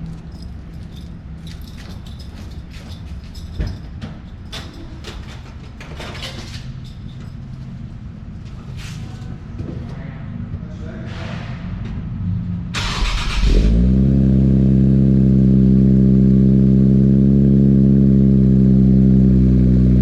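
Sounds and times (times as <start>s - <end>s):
car engine idling: 12.5s - 20.0s.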